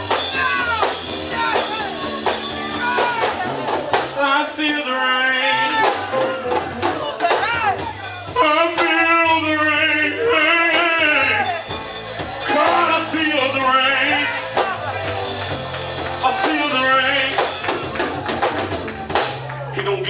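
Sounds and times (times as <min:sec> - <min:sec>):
tambourine shaking: 0:00.0 - 0:20.0
person singing wordless phrases: 0:04.2 - 0:11.7, 0:12.3 - 0:14.9, 0:16.2 - 0:17.6, 0:19.7 - 0:20.0.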